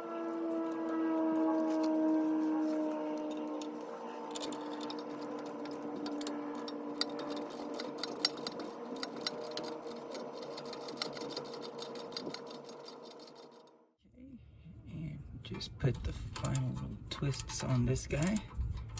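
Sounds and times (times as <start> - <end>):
ratchet wrench clicking: 3.6 - 13.4, 16.3 - 18.9.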